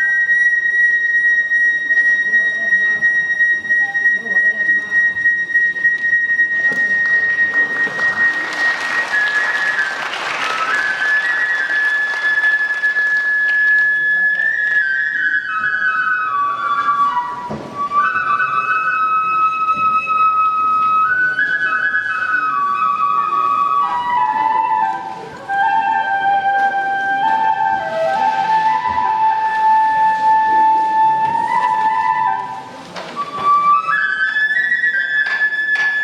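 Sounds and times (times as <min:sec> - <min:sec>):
bamboo flute melody: 0:00.0 - 0:36.0
audience applause: 0:07.5 - 0:14.1.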